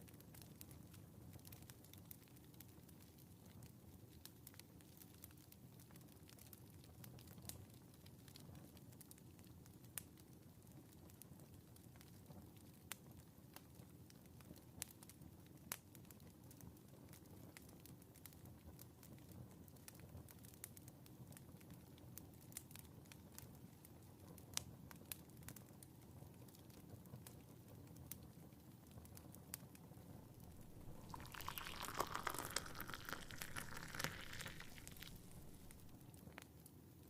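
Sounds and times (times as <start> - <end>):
fire crackling and popping: 30.3 - 36.0.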